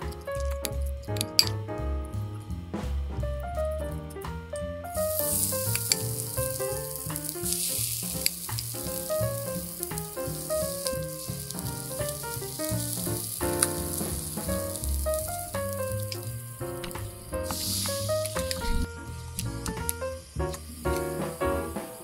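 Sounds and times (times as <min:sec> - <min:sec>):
background music: 0:00.0 - 0:22.0
food sizzling on hot plate: 0:05.1 - 0:18.9.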